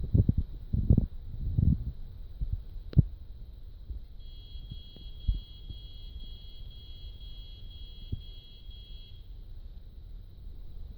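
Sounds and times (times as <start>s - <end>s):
faint steady high tone: 3.2s - 10.9s.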